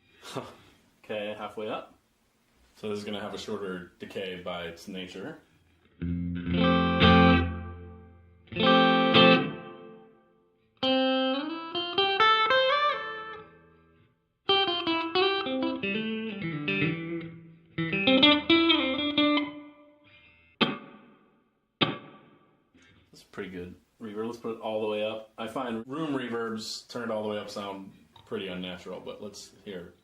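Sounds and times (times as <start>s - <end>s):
electric guitar with reverb: 5.9s - 23.0s.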